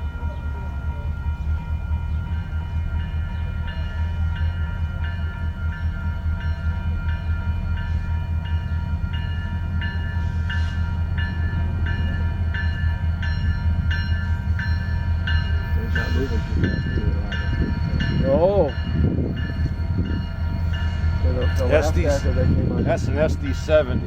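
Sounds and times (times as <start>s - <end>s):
freight train rumbling past: 0.0s - 24.0s
locomotive bell ringing: 0.0s - 24.0s.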